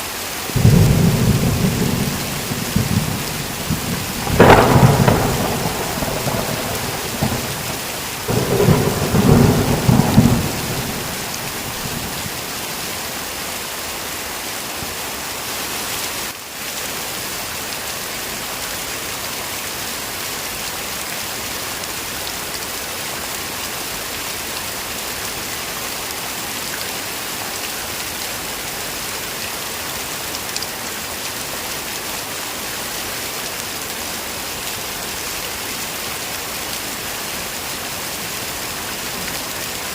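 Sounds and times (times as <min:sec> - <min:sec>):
heavy rain hissing: 0:00.0 - 0:17.0
thunder rumbling: 0:00.6 - 0:12.5.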